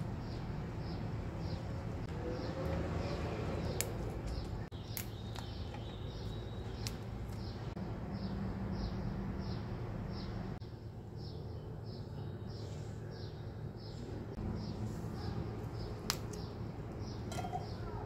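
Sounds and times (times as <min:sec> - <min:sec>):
small bird chirping: 0:02.4 - 0:10.4.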